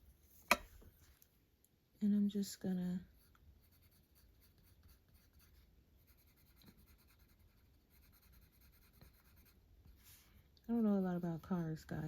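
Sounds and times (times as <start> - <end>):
pencil scratching on paper: 3.1 - 10.2.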